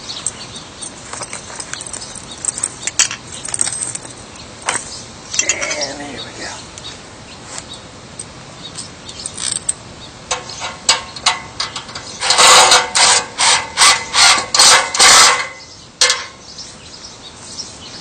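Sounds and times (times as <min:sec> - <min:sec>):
handling clicks and knocks: 0:00.2 - 0:05.9.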